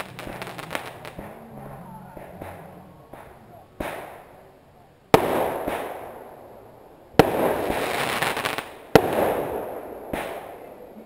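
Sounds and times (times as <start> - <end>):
echoing rumble: 0.0 - 7.9
fireworks bangs: 0.0 - 11.0
fireworks crackling: 0.0 - 11.0.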